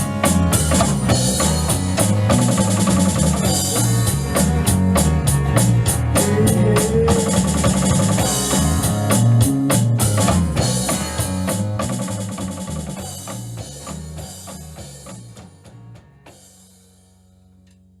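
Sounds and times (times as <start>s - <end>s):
small band playing: 0.0s - 17.0s.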